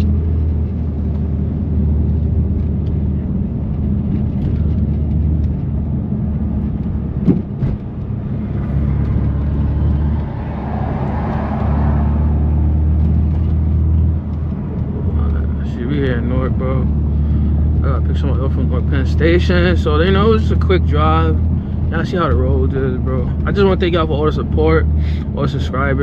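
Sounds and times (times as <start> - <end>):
car engine droning: 0.0 - 26.0
rushing noise: 7.4 - 13.9.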